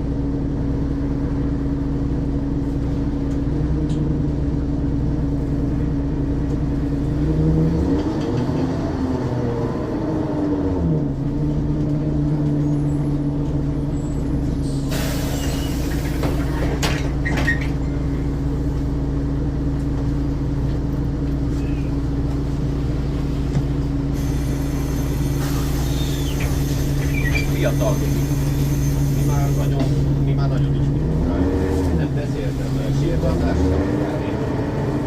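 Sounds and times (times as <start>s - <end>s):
bus diesel engine idling: 0.0s - 7.1s, 12.0s - 31.2s, 31.8s - 35.0s
compressed air hiss: 14.9s - 16.2s, 24.2s - 29.6s
pneumatic clicks and hisses: 24.2s - 30.0s.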